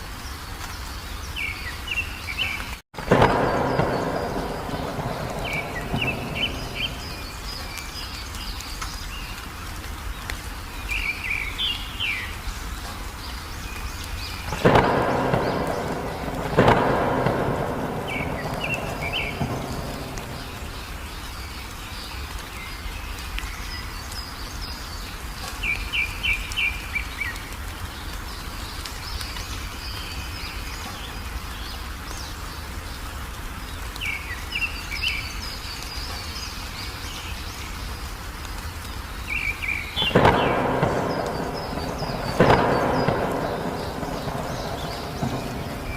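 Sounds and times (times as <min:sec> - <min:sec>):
songbirds chirping: 0:00.0 - 0:45.9
steady rain: 0:00.0 - 0:45.9
thunder claps rumbling: 0:03.0 - 0:08.5, 0:14.1 - 0:21.6, 0:39.3 - 0:45.9.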